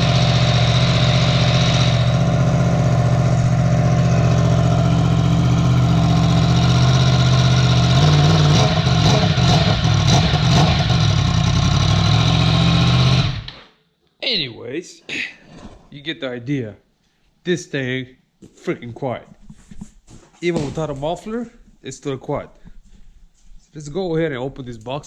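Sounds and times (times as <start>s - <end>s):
motorcycle engine idling: 0.0s - 13.5s.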